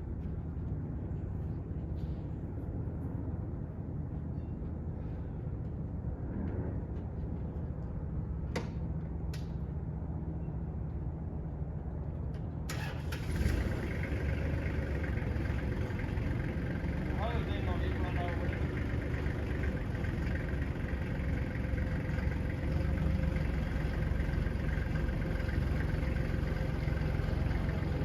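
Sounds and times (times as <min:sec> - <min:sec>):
vehicle engine idling: 0:06.9 - 0:28.0.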